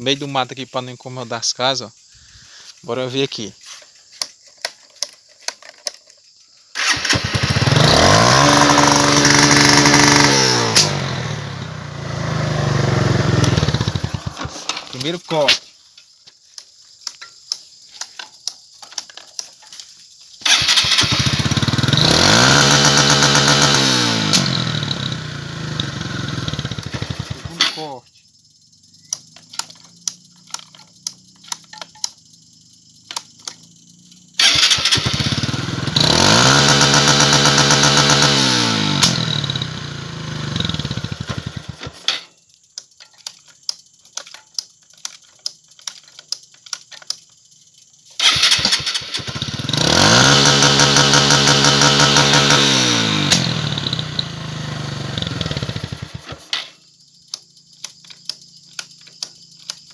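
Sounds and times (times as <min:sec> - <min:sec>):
motorcycle engine revving to limiter: 0:06.8 - 0:15.0, 0:20.4 - 0:28.0, 0:32.6 - 0:42.2, 0:48.2 - 0:56.7
motorcycle engine idling unevenly: 0:06.8 - 0:15.1, 0:20.5 - 0:28.0, 0:39.2 - 0:41.9, 0:48.2 - 0:56.5
sharp engine pops: 0:10.7 - 0:11.0.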